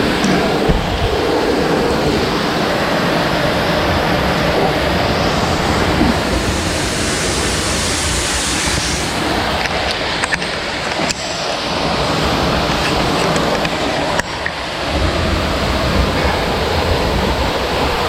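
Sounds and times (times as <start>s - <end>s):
waterfall roar: 0.0s - 18.0s
light knocks: 0.2s - 1.3s.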